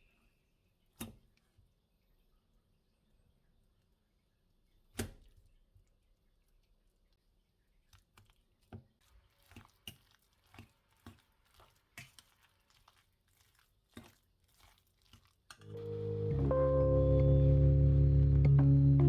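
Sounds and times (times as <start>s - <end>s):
crinkling and tearing: 8.0s - 15.7s.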